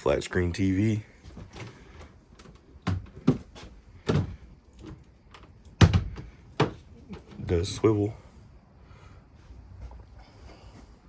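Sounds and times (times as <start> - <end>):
sharp knocks and clunks: 1.3 - 7.4.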